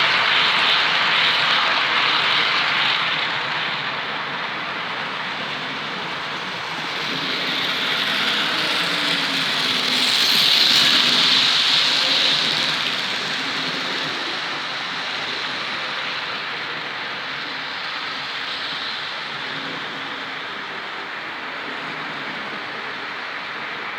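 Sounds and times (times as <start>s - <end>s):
model train wheels and motor whir: 0.0s - 23.9s.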